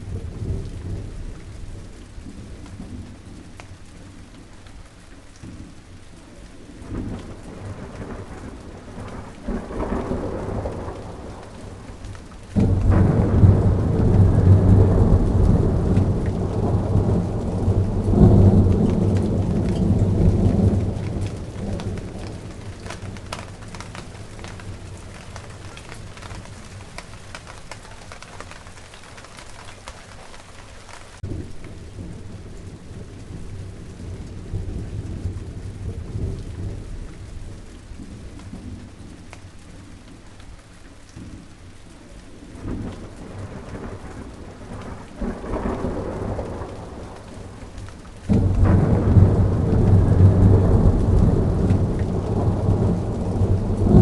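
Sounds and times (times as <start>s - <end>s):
rain falling: 0.0s - 54.0s
rolling thunder: 6.6s - 29.3s, 31.2s - 39.7s, 42.5s - 54.0s.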